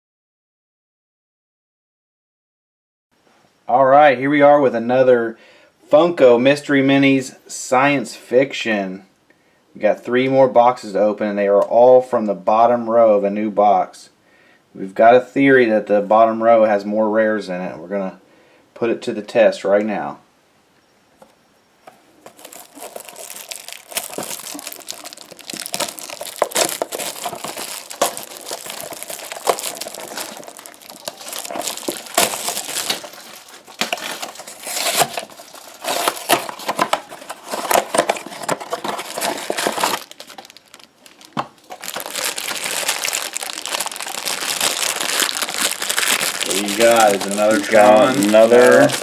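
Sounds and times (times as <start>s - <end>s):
packaging crinkling: 22.2s - 49.0s.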